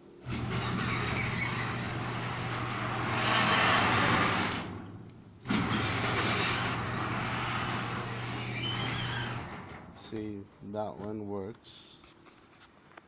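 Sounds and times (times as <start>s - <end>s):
garage door opener motor humming: 0.0s - 10.1s
rattling drive noise: 0.1s - 10.4s.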